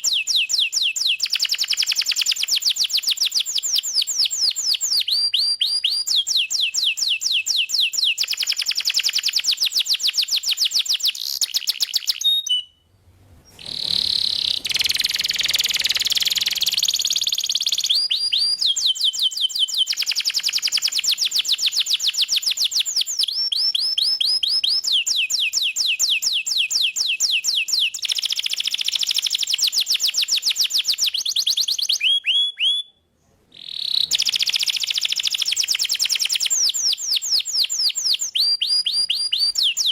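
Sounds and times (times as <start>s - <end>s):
canary singing trills: 13.5s - 32.9s.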